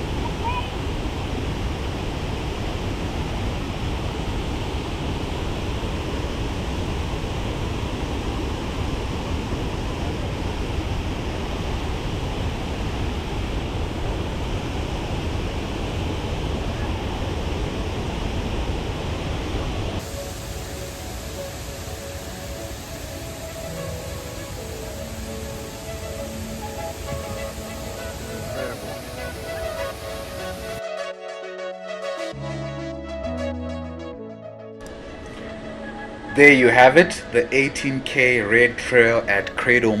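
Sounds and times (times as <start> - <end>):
waterfall rushing: 0.0 - 30.8.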